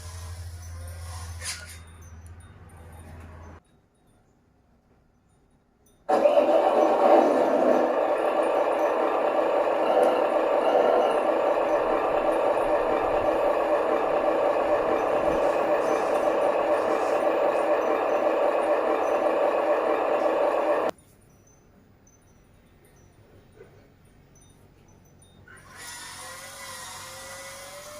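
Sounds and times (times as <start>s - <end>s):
toy truck motor running: 6.1s - 20.9s, 25.6s - 27.9s.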